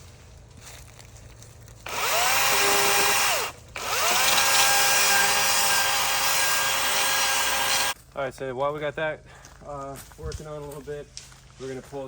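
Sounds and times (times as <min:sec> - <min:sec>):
electric saw motor: 0:01.9 - 0:08.0.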